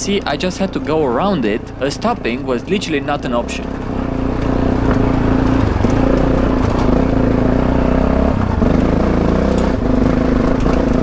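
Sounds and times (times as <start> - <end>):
motorcycle engine running hard: 0.0 - 11.0
stones clattering under tyres: 4.2 - 7.2.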